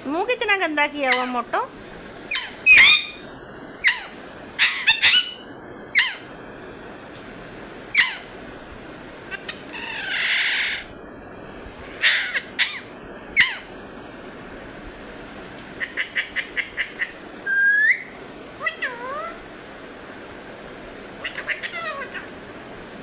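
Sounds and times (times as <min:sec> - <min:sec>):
parrot squawking: 0:00.9 - 0:01.6, 0:02.3 - 0:06.3, 0:07.9 - 0:08.4, 0:09.3 - 0:10.9, 0:11.9 - 0:13.7, 0:15.8 - 0:19.4, 0:21.2 - 0:22.4
parrot hissing: 0:02.3 - 0:03.2, 0:03.8 - 0:06.3, 0:07.9 - 0:08.4, 0:09.2 - 0:11.0, 0:11.8 - 0:13.7, 0:15.8 - 0:19.4, 0:21.2 - 0:22.4.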